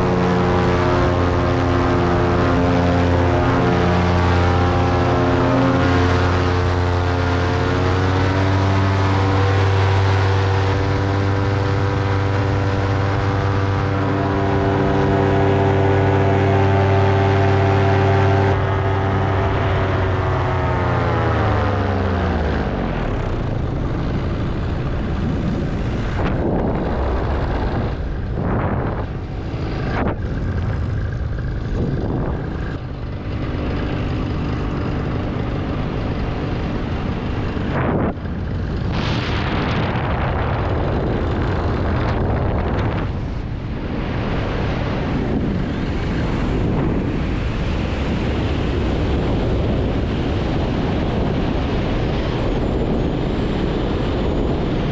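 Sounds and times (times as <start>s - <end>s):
paramotor engine and propeller: 0.0s - 54.9s
wind rushing over microphone: 0.0s - 54.9s.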